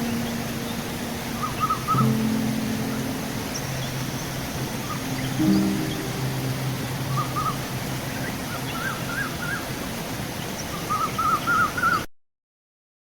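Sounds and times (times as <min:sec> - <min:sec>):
guitar music: 0:00.0 - 0:08.5
birds calling: 0:00.0 - 0:09.7
river water rushing: 0:00.0 - 0:12.0.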